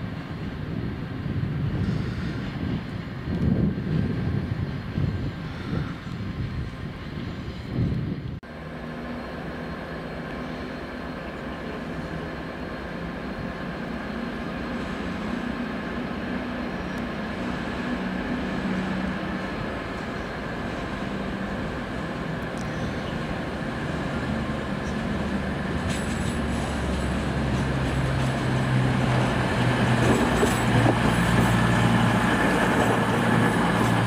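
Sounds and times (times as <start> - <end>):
train running with drone: 0.0 - 34.0.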